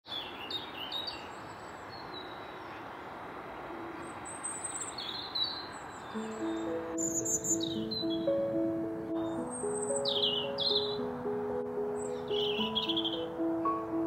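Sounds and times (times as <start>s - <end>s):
small birds chirping: 0.1s - 14.0s
steady outdoor hiss: 0.1s - 14.0s
soft music with held notes: 6.1s - 14.0s.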